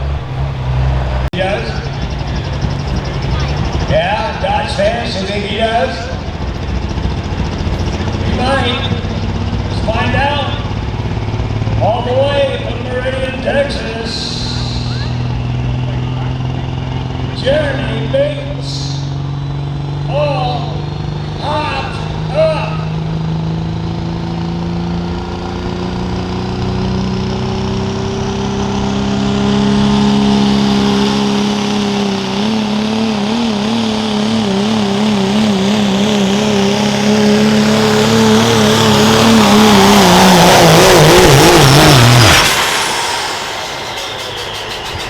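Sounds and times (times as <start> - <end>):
diesel engine at full throttle: 0.0 - 45.0.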